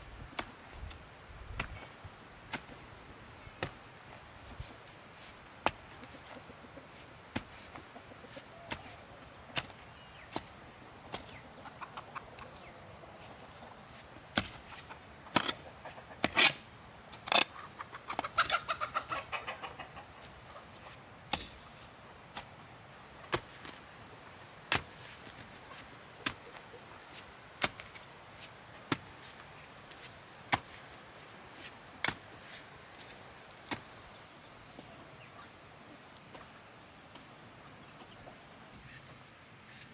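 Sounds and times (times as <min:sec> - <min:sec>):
chicken clucking: 0:11.3 - 0:12.8, 0:14.7 - 0:16.2, 0:17.5 - 0:21.0.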